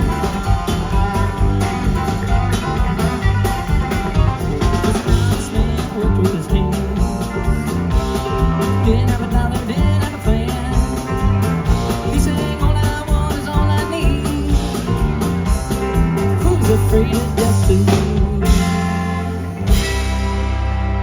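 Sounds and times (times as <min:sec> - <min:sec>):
country-rock band playing: 0:00.0 - 0:21.0
guitar chord ringing: 0:18.5 - 0:21.0.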